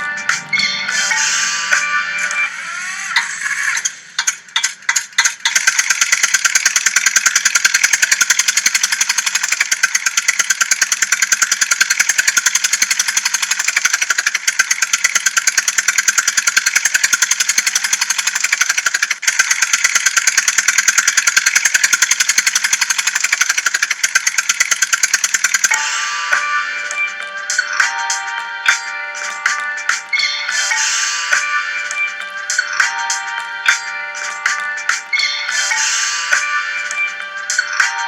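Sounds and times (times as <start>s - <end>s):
tractor engine chugging: 3.2s - 26.7s.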